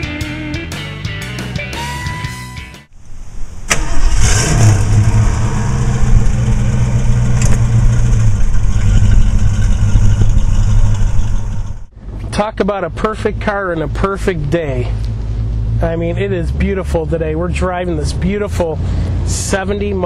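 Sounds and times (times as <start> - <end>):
car engine starting and idling: 3.4 - 20.0
starter click: 7.3 - 7.7.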